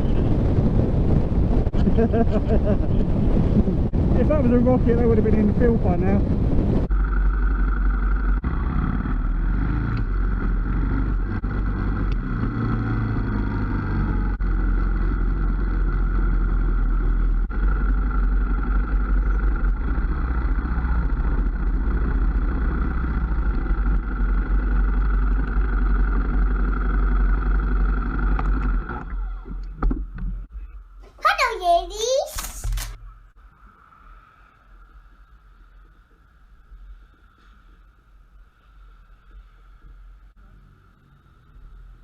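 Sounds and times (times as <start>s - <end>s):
wind rush: 0.0s - 7.3s
motorcycle engine running: 6.5s - 29.2s.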